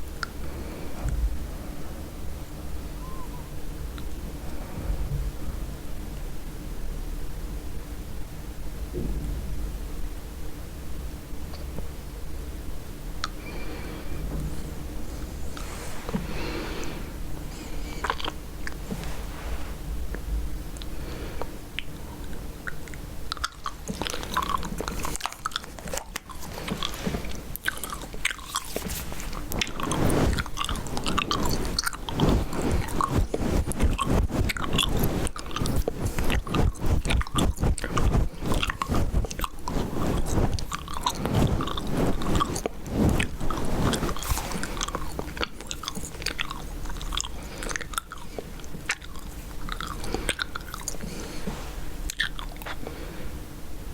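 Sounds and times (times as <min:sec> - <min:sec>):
gum chewing clicks and smacks: 0:17.9 - 0:18.9, 0:21.8 - 0:51.1, 0:52.1 - 0:52.8.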